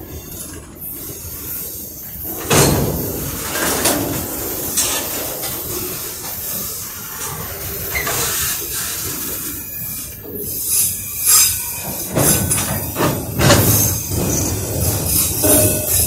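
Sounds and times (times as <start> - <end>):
steel wheels rolling on rails: 0.0 - 16.0.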